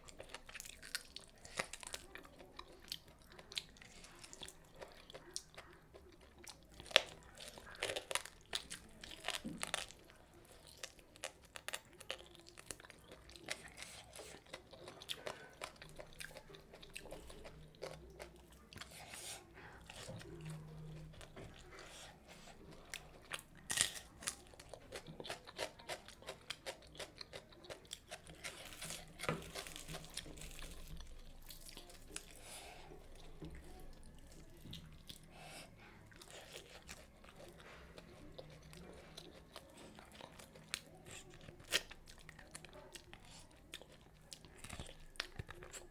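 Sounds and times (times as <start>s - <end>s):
person chewing crunchy food: 0.0s - 45.9s.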